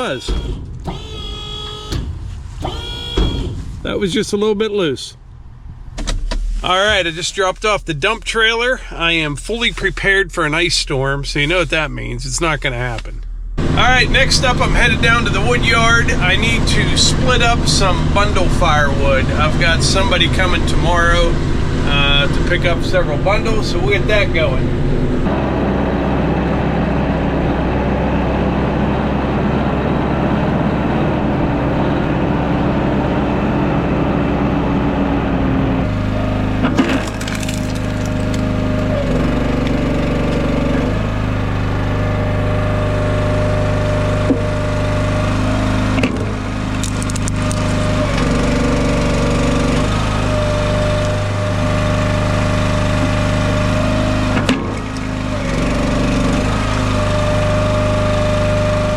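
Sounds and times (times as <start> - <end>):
log splitter engine under load: 0.0 - 4.0, 13.6 - 58.9
vehicle engine running: 0.0 - 58.9
firewood cracking: 36.8 - 38.8, 46.7 - 47.8.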